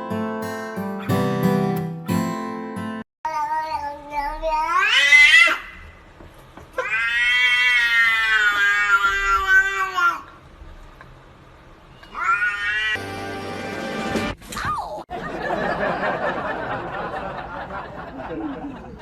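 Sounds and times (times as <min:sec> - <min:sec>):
acoustic guitar music: 0:00.0 - 0:03.0
cat meowing: 0:03.3 - 0:05.8, 0:06.8 - 0:10.2, 0:12.1 - 0:13.0.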